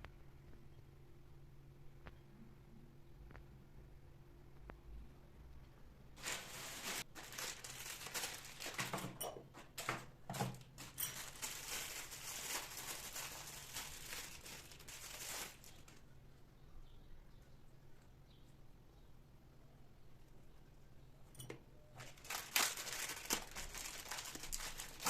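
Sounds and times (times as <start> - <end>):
packaging crinkling: 6.2 - 16.0, 22.0 - 25.0.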